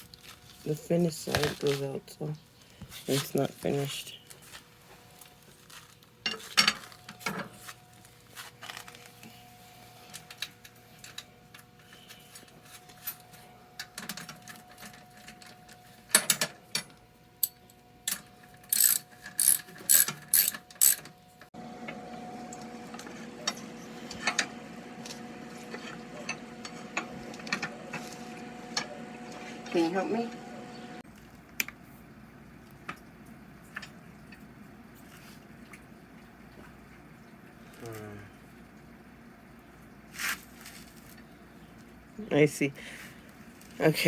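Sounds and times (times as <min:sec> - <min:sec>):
metal parts clicking and clattering: 0:10.1 - 0:21.2.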